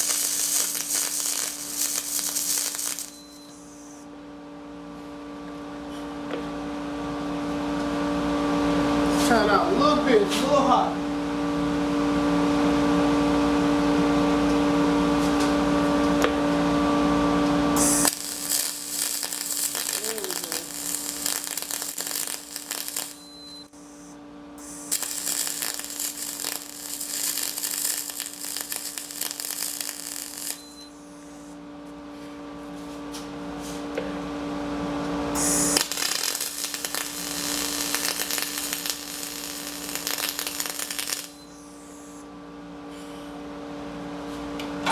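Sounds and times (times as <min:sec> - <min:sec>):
steady hum: 0:00.0 - 0:04.0, 0:17.8 - 0:31.6, 0:35.4 - 0:42.3
welding arc hissing and crackling: 0:00.0 - 0:04.0, 0:17.8 - 0:31.4, 0:35.4 - 0:42.1.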